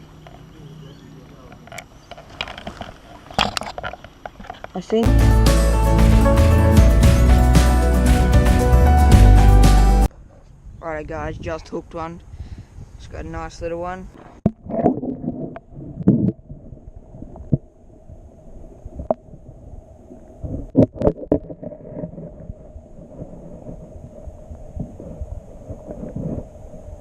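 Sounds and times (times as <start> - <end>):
wind rumble on microphone: 10.2 - 27.0.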